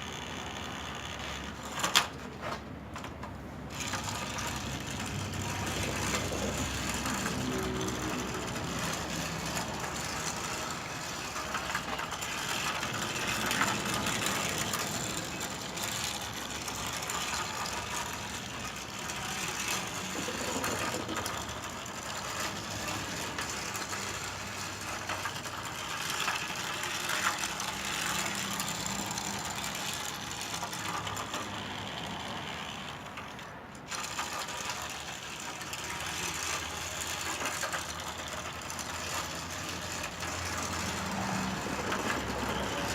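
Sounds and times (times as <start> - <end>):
toy train motor clattering: 0.0 - 42.9.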